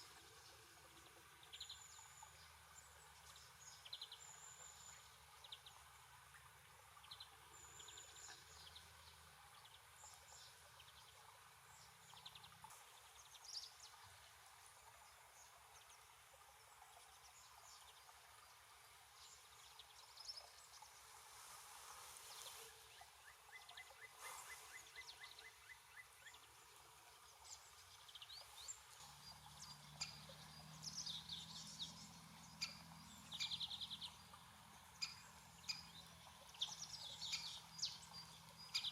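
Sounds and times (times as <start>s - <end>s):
small birds chirping: 22.1s - 38.9s.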